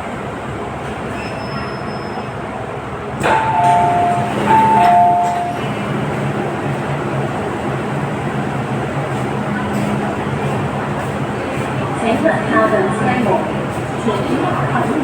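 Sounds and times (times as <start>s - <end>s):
train running rumble: 0.0s - 15.0s
two-note ding-dong chime: 3.3s - 5.6s.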